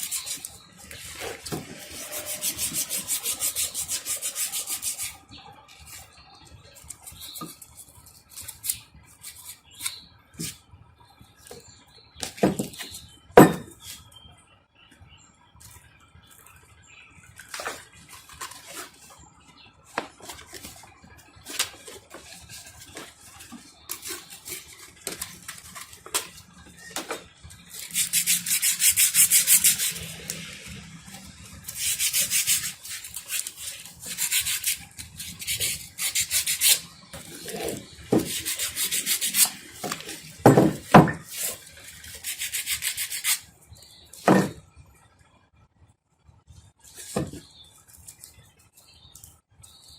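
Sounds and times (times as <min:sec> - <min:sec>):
abrasive hand scrubbing: 0:27.8 - 0:30.4.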